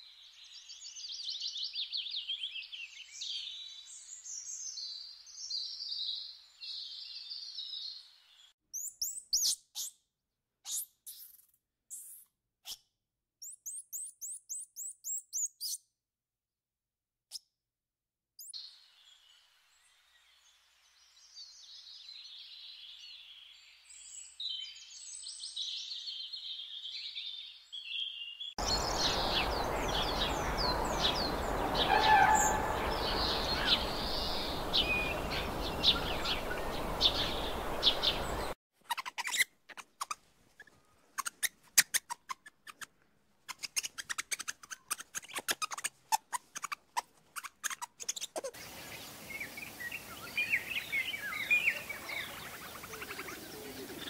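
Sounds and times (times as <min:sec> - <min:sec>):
bird chirps and calls: 0:00.7 - 0:10.0, 0:24.0 - 0:42.9, 0:43.5 - 0:54.0
steady background hiss: 0:28.6 - 0:31.9, 0:32.6 - 0:38.5.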